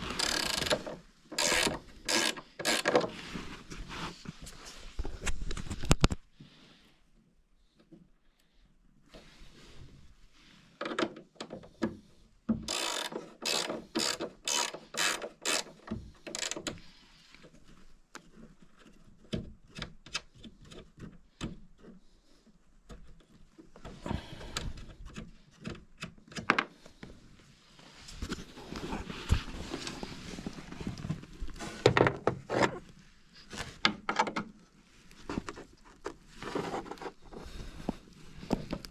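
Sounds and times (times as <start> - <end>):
hand tool rasping strokes: 0.0 - 3.0, 12.6 - 16.6.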